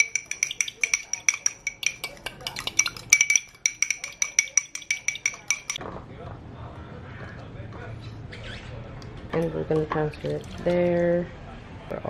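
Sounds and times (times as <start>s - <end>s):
utensil clinking in mixing bowl: 0.0s - 5.8s.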